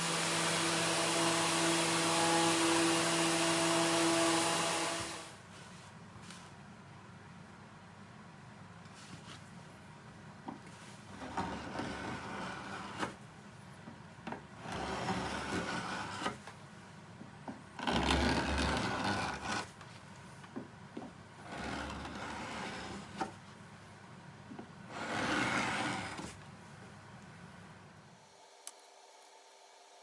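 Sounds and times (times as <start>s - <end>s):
hand sanding wood: 0.0s - 5.4s.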